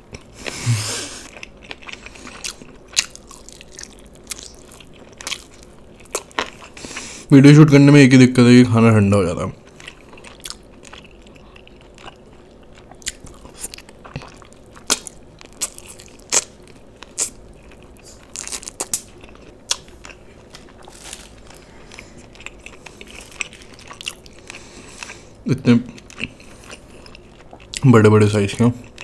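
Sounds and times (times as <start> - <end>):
chewing and biting chicken: 1.2 - 6.8, 9.7 - 25.2.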